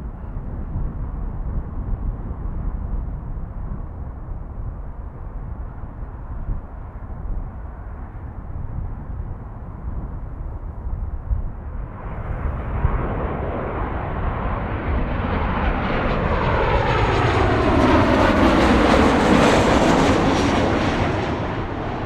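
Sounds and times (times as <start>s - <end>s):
jet airliner passing: 11.5s - 22.0s.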